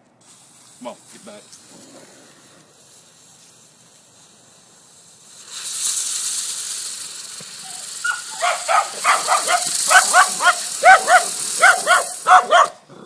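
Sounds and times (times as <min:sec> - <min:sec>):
firework hissing: 0:00.2 - 0:12.8
short pitched calls: 0:07.6 - 0:12.6.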